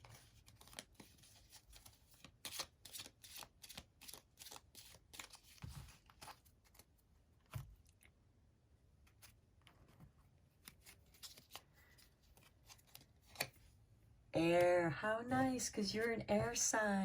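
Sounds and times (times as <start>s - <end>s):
cards being shuffled: 0.0s - 7.7s, 10.6s - 13.6s.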